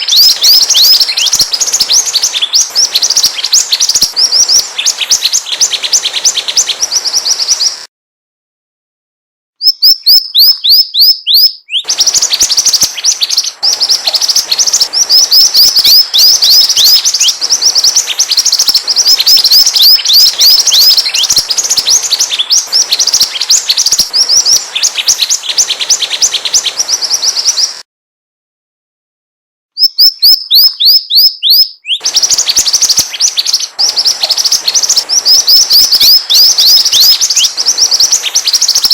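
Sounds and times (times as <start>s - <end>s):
high downward-slurred bird chirps: 0.0s - 7.9s, 9.6s - 27.8s, 29.8s - 38.9s.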